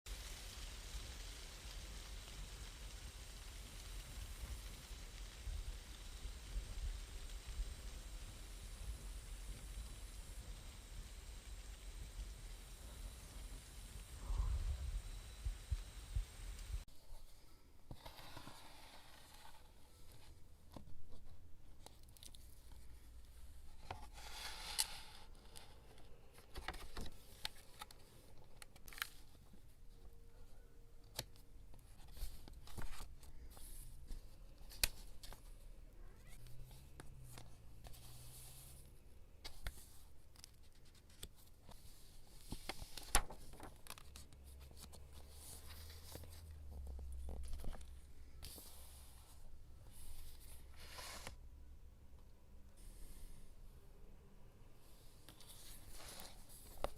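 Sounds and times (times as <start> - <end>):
paper rustling swishes: 36.2 - 51.4, 55.1 - 56.9.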